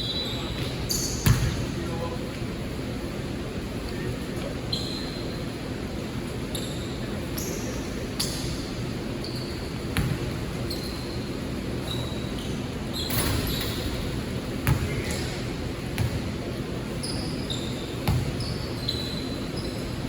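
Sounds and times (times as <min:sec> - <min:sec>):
sneakers squeaking on court: 0:00.0 - 0:01.8, 0:04.7 - 0:05.4, 0:06.4 - 0:20.0
basketball bouncing: 0:01.2 - 0:01.6, 0:10.0 - 0:10.4, 0:14.6 - 0:15.3, 0:15.9 - 0:16.3, 0:18.0 - 0:18.5.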